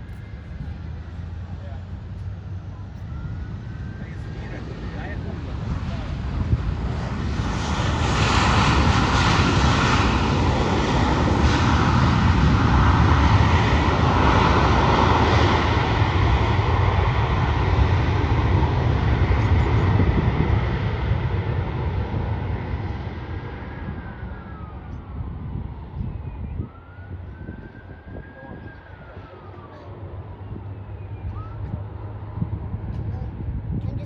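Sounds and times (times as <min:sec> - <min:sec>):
airliner engines roaring past: 0:00.0 - 0:34.0.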